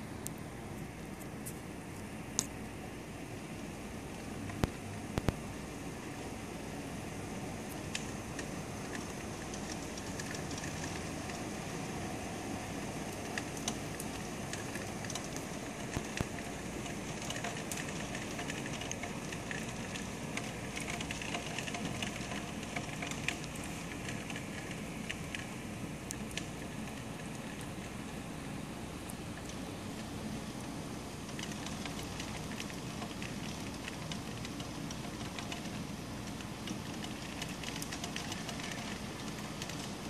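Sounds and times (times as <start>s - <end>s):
heavy rain hissing: 2.9s - 40.0s
raindrop ticks: 4.1s - 5.4s, 7.6s - 11.8s, 12.8s - 28.2s, 29.0s - 40.0s.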